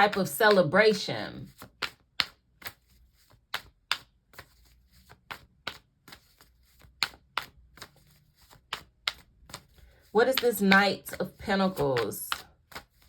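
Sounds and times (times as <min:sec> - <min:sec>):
cards clicking and tapping: 0:00.0 - 0:00.7, 0:01.4 - 0:13.0.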